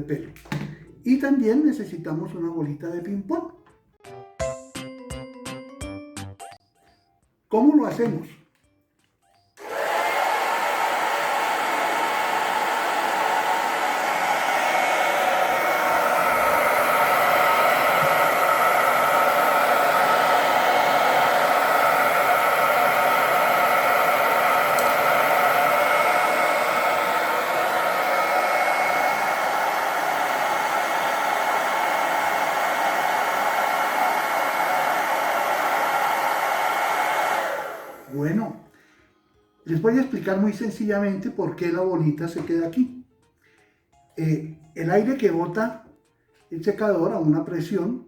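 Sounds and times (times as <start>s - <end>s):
hair dryer running: 9.6s - 38.4s.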